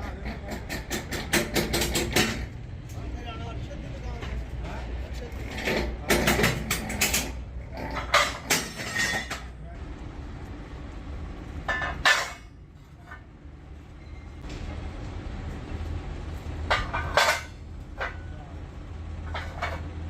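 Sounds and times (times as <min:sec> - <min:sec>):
metal clanking: 0:00.0 - 0:03.1, 0:04.1 - 0:09.6, 0:11.6 - 0:13.3, 0:16.6 - 0:18.5, 0:19.2 - 0:20.0.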